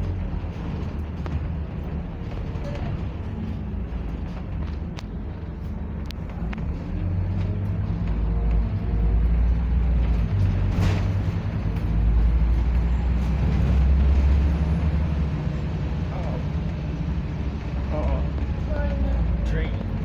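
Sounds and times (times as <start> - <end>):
bus engine droning: 0.0 - 20.0.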